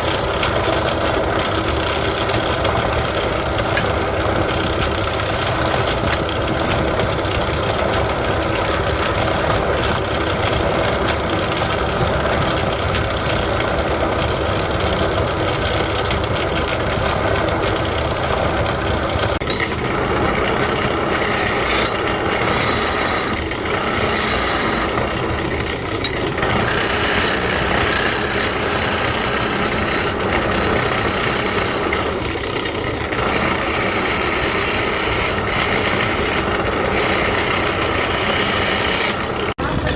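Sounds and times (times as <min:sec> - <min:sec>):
tool cutting spinning wood: 0:00.0 - 0:39.9
wood lathe running: 0:00.0 - 0:39.9.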